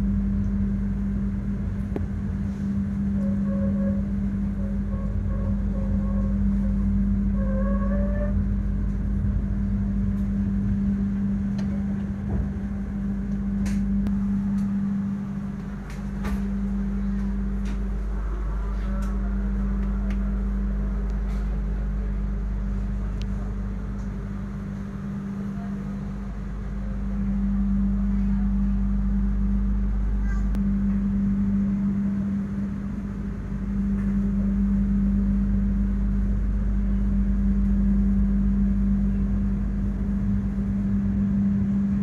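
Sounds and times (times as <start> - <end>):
train carriage hum and rumble: 0.0 - 42.0.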